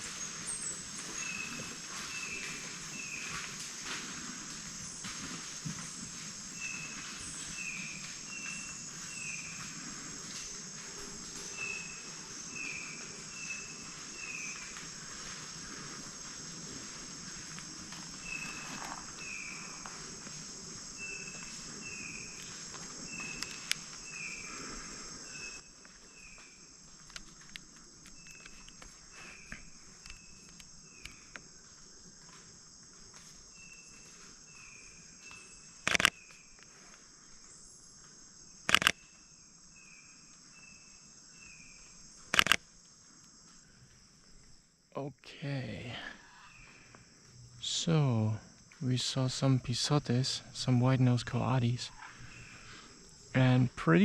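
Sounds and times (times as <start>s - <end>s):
insects chorus: 0.0s - 54.0s
light clicks and rustles: 26.9s - 31.5s.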